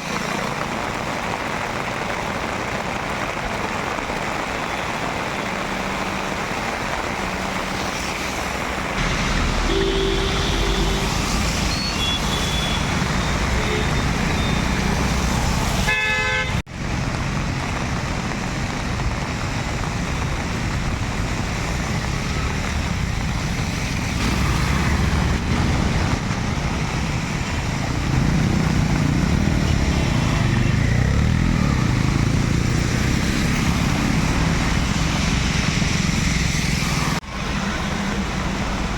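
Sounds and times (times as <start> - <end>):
car horns tooting: 9.6 - 14.8, 15.9 - 16.6.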